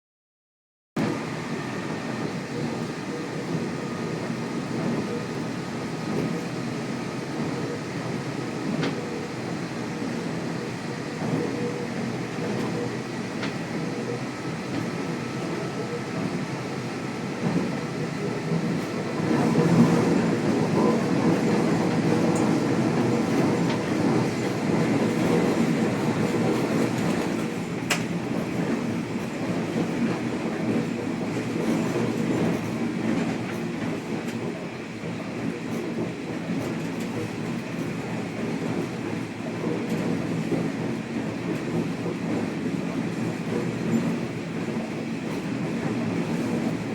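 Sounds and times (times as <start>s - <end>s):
railcar running on track: 1.0s - 46.9s.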